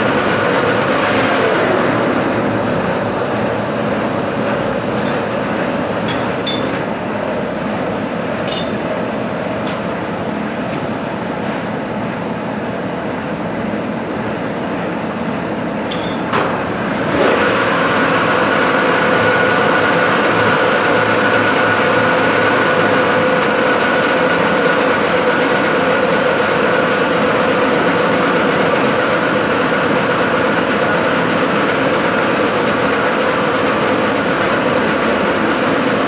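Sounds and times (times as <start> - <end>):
steady machine whine: 0.0 - 36.0
machine tool running: 4.7 - 7.1, 15.9 - 35.3.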